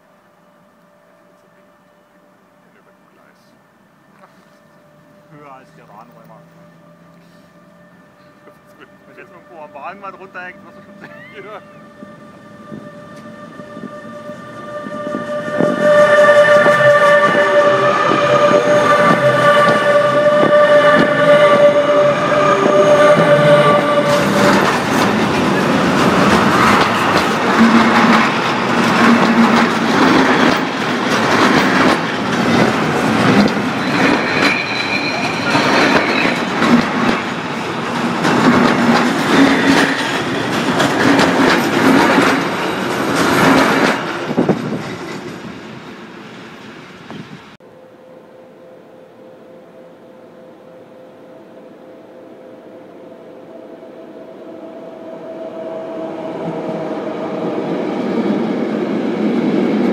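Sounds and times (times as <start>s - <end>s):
steady high tone: 0.0s - 38.2s, 47.5s - 59.1s
train wagons rumbling overhead: 0.9s - 47.6s, 53.9s - 59.9s
high squeal: 2.7s - 28.5s, 33.2s - 37.8s.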